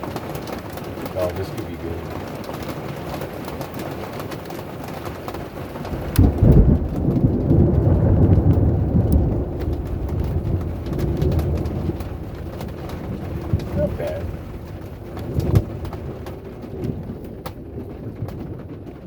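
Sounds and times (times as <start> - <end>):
steady rain falling: 0.0 - 19.0
thunderclap with deep rumble: 0.0 - 19.0.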